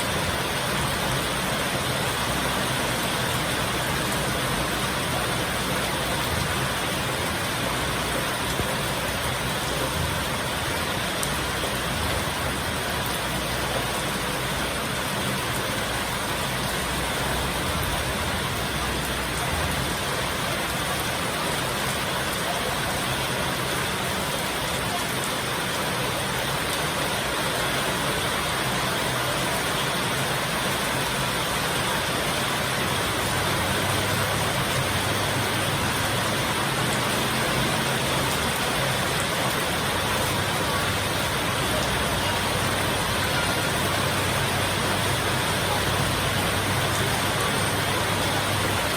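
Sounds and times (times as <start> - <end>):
heavy rain pouring: 0.0 - 48.9.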